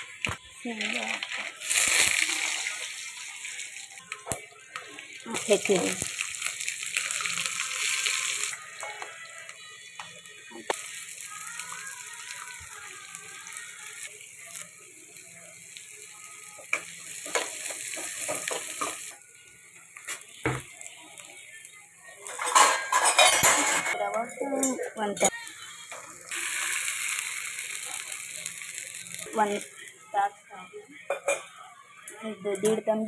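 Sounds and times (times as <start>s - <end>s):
food sizzling in oil: 0.0s - 30.6s
metal spoon scraping a pan: 22.2s - 25.4s.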